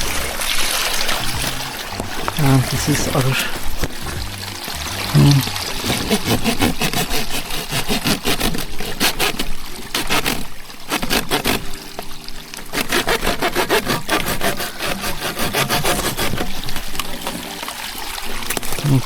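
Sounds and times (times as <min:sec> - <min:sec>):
hand saw cutting plastic pipe: 0:01.3 - 0:11.8, 0:12.6 - 0:17.0.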